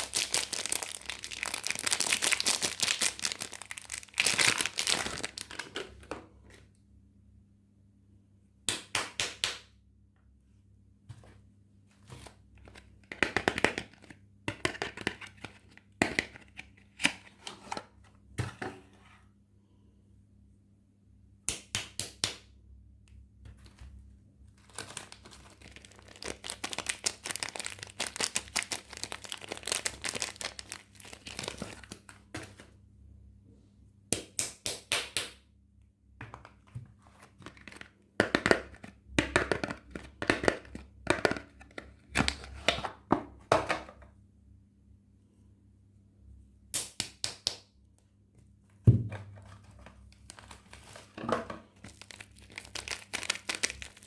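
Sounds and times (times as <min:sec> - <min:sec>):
wrappers crinkling and tearing: 0:00.0 - 0:05.7, 0:24.6 - 0:32.1, 0:50.1 - 0:51.2, 0:51.8 - 0:54.0.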